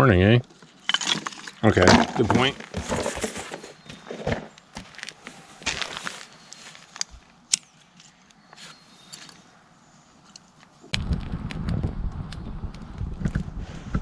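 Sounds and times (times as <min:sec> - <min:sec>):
campfire crackling: 0:10.4 - 0:14.0.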